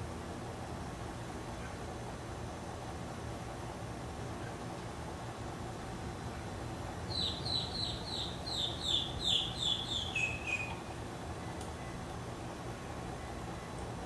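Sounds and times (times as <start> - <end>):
songbird whistling: 7.1 - 10.9.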